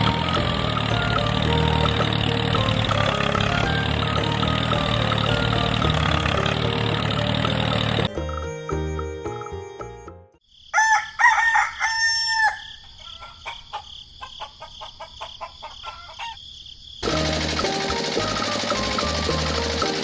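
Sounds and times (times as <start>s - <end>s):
background music: 0.0s - 10.4s, 17.0s - 20.0s
rooster crowing: 10.7s - 16.4s
chicken clucks: 12.8s - 16.4s.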